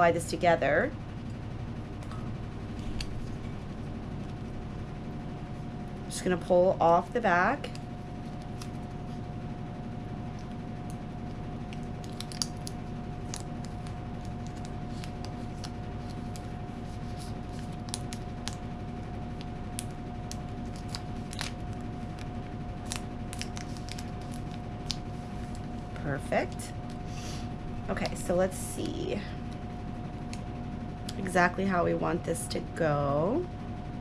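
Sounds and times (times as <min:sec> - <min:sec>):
background hum with faint tone: 0:00.0 - 0:34.0
paper backing sheet crackling: 0:10.3 - 0:27.0.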